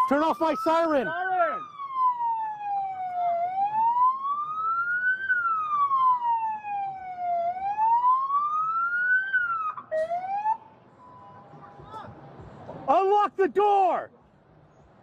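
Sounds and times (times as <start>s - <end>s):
police siren wailing: 0.0s - 11.2s.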